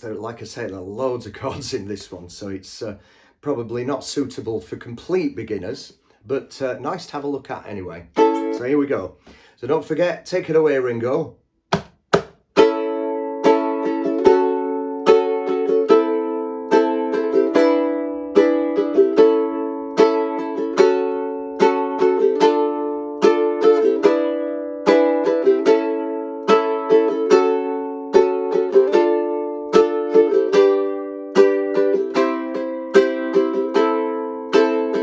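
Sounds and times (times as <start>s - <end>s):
ukulele strumming: 8.1s - 9.0s, 11.7s - 35.0s.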